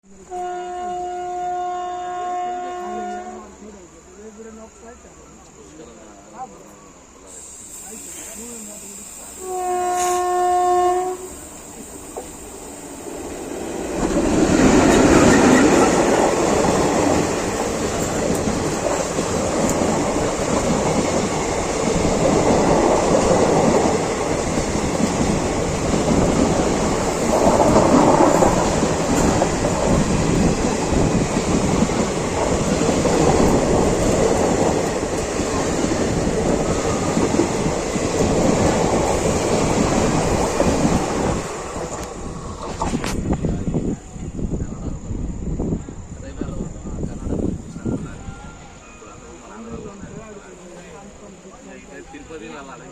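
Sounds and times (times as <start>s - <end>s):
train wheels rumbling and clattering: 9.6s - 48.2s.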